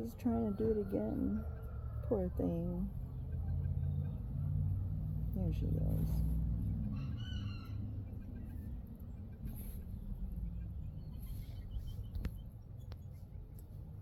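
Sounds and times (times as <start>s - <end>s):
steady low rumble: 0.0s - 14.0s
baby chicks peeping: 5.4s - 13.4s.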